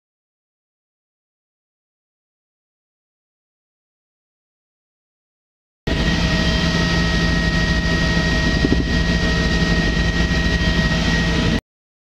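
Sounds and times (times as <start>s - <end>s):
helicopter engine and rotor drone: 5.9s - 11.6s
high whine: 5.9s - 11.6s.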